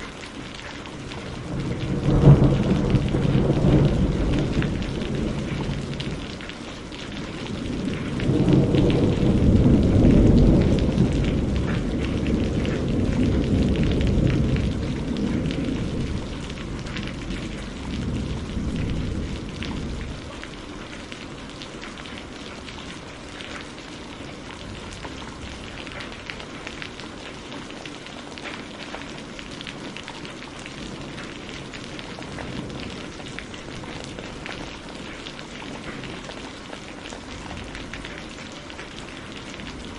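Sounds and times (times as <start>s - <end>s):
steady rain: 0.0s - 39.9s
thunder rolling: 1.1s - 20.6s.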